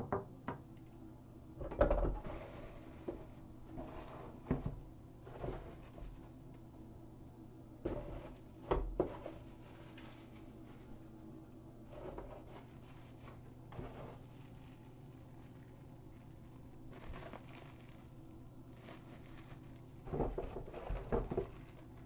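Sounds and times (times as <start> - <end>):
packaging rustling and scraping: 7.8 - 11.0, 11.8 - 22.0.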